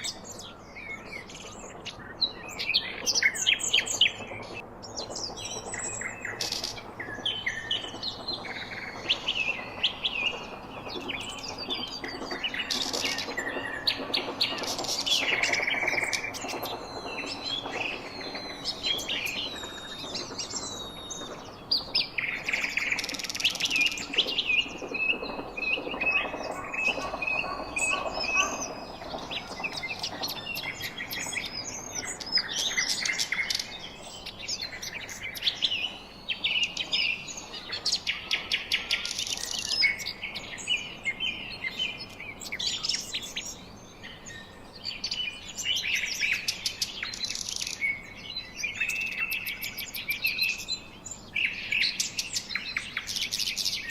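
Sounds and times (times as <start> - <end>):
birds chirping and singing: 0.0 - 53.9.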